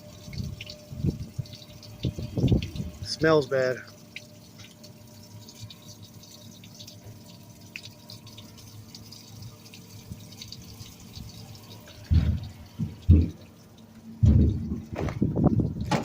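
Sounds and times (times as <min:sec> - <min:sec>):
water dripping and trickling: 0:00.0 - 0:16.0
loud low thumps: 0:14.2 - 0:15.3.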